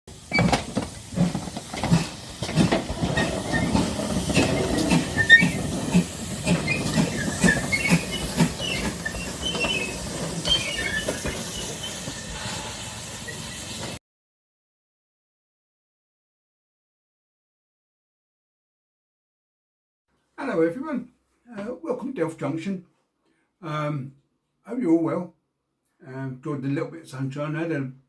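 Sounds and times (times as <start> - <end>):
steam hiss: 0.1 - 14.0
steam train chuffing: 0.1 - 14.0.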